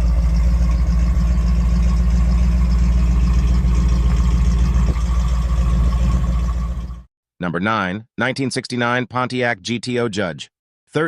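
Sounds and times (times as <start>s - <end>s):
car engine deep rumble: 0.0s - 7.1s.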